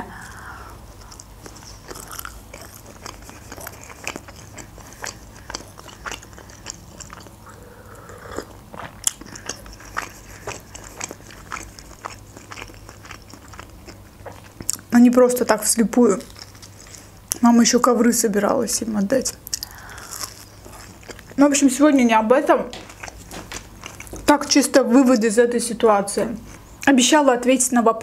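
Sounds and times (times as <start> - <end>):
chewing food: 0.1 - 18.0, 19.2 - 25.3.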